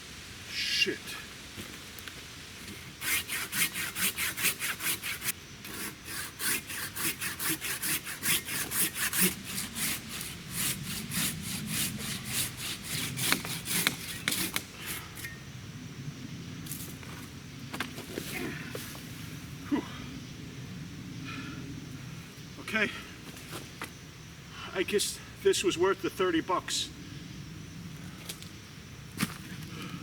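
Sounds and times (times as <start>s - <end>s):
hand saw cutting log: 3.0s - 15.4s.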